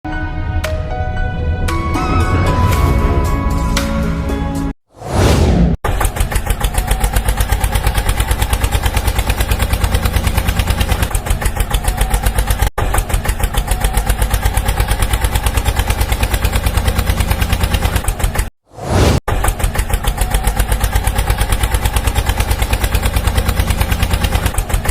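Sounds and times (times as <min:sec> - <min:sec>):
tractor engine chugging: 0:05.8 - 0:18.5, 0:19.3 - 0:24.9.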